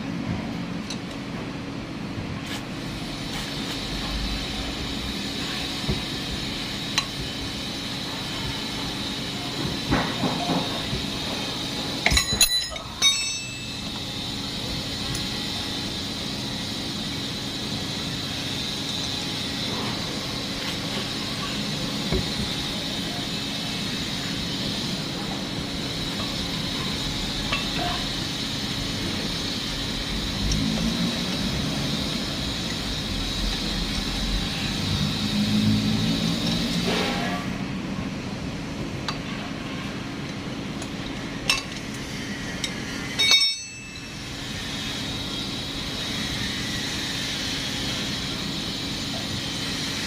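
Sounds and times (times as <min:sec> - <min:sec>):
steady background hum: 0:00.0 - 0:50.0
metallic clinks of tools: 0:12.0 - 0:14.0, 0:43.2 - 0:44.2.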